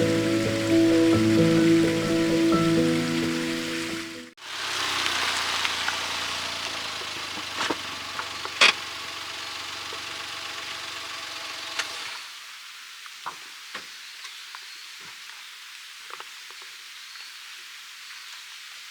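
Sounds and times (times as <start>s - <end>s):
firewood crackling and popping: 4.6s - 10.3s.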